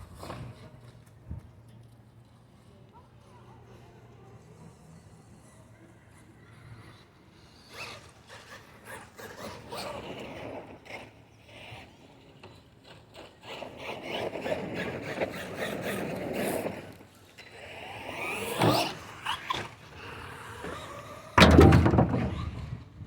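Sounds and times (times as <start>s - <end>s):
knocks and rattles: 21.4s - 22.9s.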